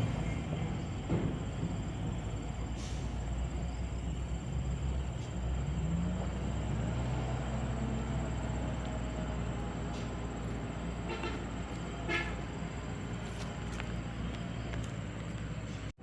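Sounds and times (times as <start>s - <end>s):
truck diesel engine running: 0.0s - 16.0s.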